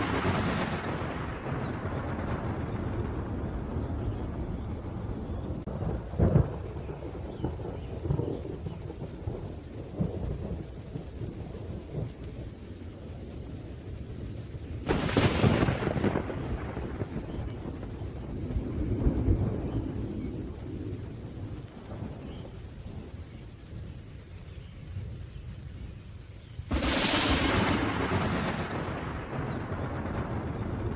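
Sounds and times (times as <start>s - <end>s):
sharp thunder crack: 0.0s - 9.0s, 14.9s - 17.9s, 26.7s - 30.9s
low rolling thunder: 0.0s - 30.9s
steady rain: 0.0s - 30.9s.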